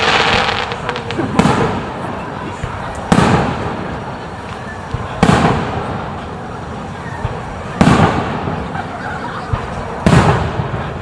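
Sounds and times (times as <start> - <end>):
firework shells booming: 0.0 - 4.2, 4.9 - 6.2, 7.2 - 8.8, 9.5 - 11.0.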